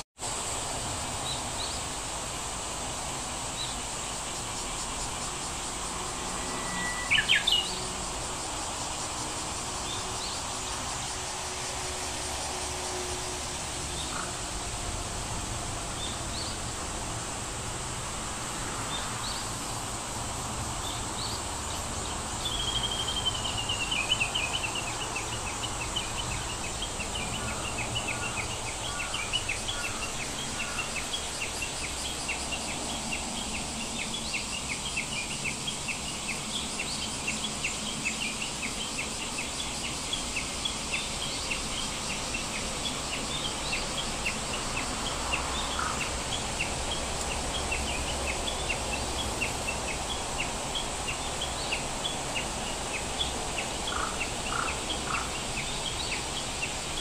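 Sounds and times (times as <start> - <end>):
steady background hiss: 0.2 - 57.0
small birds chirping: 3.5 - 11.2, 20.8 - 57.0.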